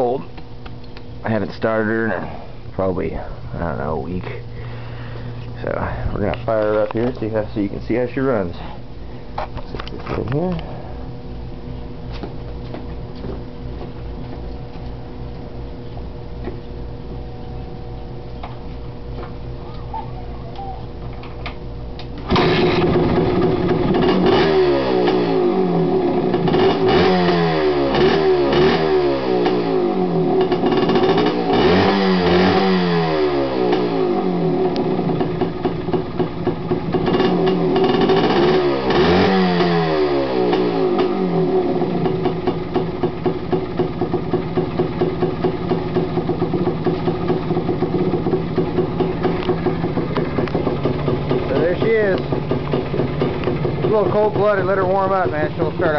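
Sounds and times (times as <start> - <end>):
two-stroke motorcycle engine revving: 22.2 - 55.9.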